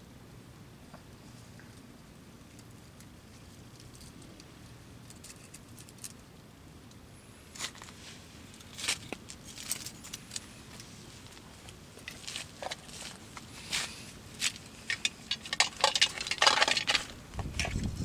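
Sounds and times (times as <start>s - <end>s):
low steady background noise: 0.0s - 18.0s
fire-lighting gear clicking and scraping: 11.7s - 18.0s.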